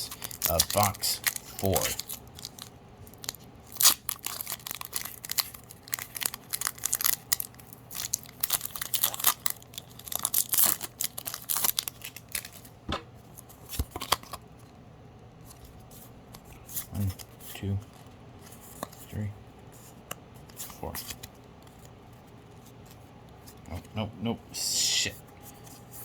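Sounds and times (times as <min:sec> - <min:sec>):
foil wrapper tearing and crinkling: 0:00.0 - 0:12.7.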